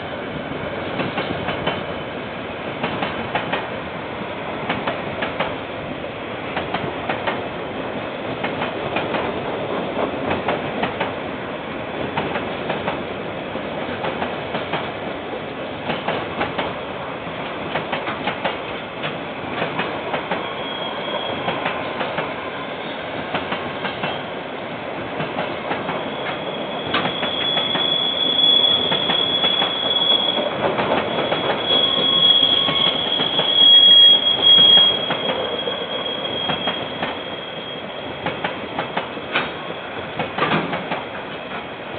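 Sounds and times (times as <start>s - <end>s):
train wheels clicking over joints: 17.4s - 20.5s, 23.2s - 24.2s, 25.0s - 37.4s, 38.2s - 41.7s
high-pitched wheel squeal: 20.4s - 21.6s, 25.9s - 38.3s.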